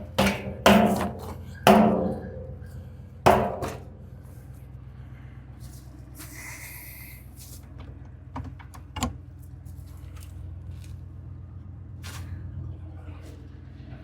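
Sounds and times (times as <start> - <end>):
sharp knocks: 0.0 - 4.1
truck engine humming: 0.0 - 14.0.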